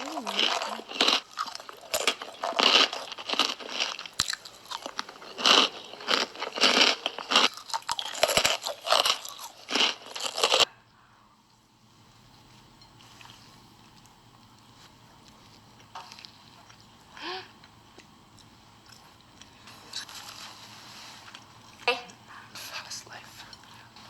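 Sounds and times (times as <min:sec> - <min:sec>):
crunching and chewing snacks: 0:00.0 - 0:10.7
faint background hum: 0:00.0 - 0:24.0.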